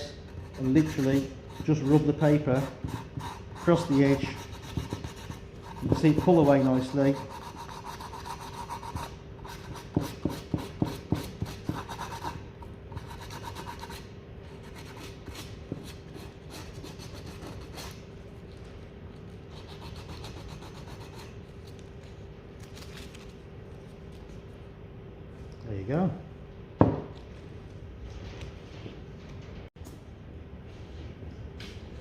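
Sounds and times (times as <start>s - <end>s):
sandpaper rasping on tape: 0.4s - 12.4s.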